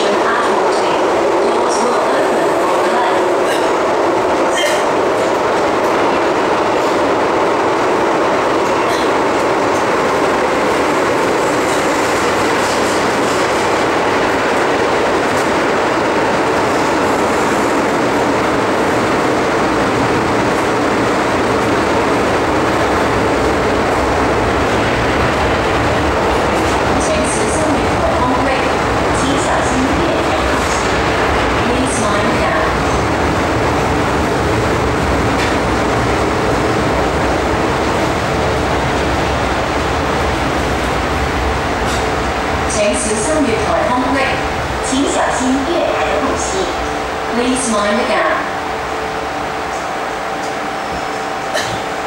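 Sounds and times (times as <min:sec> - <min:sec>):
train rumbling through tunnel: 0:00.0 - 0:52.0
train wheels clickety-clack: 0:03.4 - 0:33.8, 0:34.8 - 0:37.2, 0:41.8 - 0:42.3, 0:49.7 - 0:51.9.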